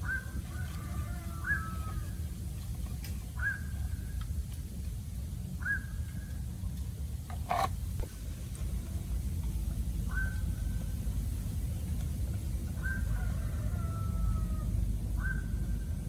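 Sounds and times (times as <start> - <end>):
bird calling: 0.0 - 2.3, 3.1 - 4.2, 5.6 - 6.4, 10.0 - 11.1, 15.2 - 15.9
steady low rumble: 0.0 - 16.0.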